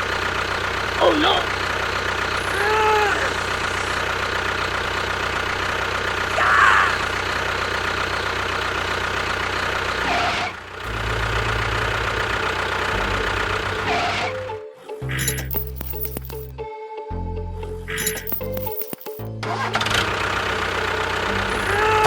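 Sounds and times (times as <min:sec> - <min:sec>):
engine idling: 0:00.0 - 0:14.0, 0:19.6 - 0:21.9.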